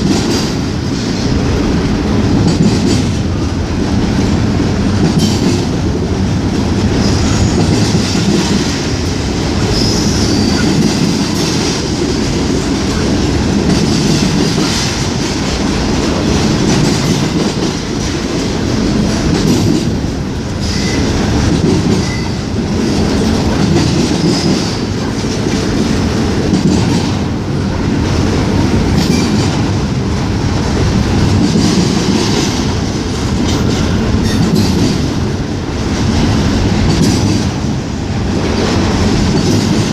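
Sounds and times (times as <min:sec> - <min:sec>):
train wheels rumbling on rails: 0:00.0 - 0:39.9
high wheel squeals: 0:09.7 - 0:10.8, 0:20.6 - 0:21.1.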